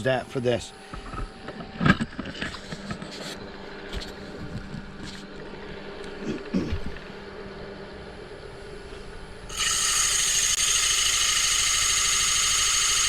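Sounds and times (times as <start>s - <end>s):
sandpaper rasping on spinning wood: 9.5s - 13.0s
wood lathe humming: 9.5s - 13.0s.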